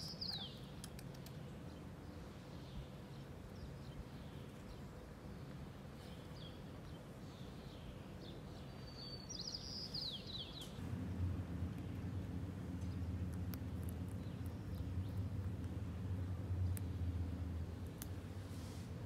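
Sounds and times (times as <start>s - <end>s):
birds chirping: 0.0s - 18.5s
low outdoor rumble: 10.3s - 19.0s.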